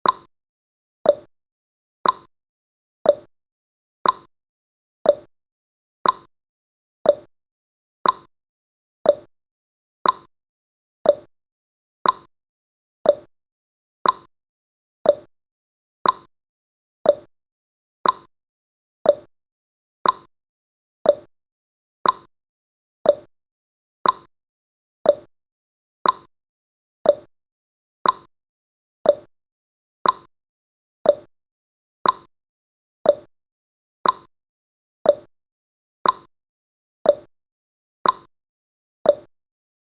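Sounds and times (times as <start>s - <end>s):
clock ticking: 2.0s - 2.3s, 6.0s - 6.3s, 8.0s - 8.3s, 10.0s - 10.3s, 12.0s - 12.3s, 14.0s - 14.3s, 15.1s - 15.3s, 16.0s - 16.3s, 18.0s - 18.3s, 20.0s - 20.3s, 21.1s - 21.3s, 22.0s - 22.3s, 24.0s - 24.3s, 25.1s - 25.3s, 26.0s - 26.3s, 27.1s - 27.3s, 28.0s - 28.3s, 29.1s - 29.3s, 30.0s - 30.3s, 31.1s - 31.3s, 32.0s - 32.3s, 34.0s - 34.3s, 36.0s - 36.3s, 38.0s - 38.3s.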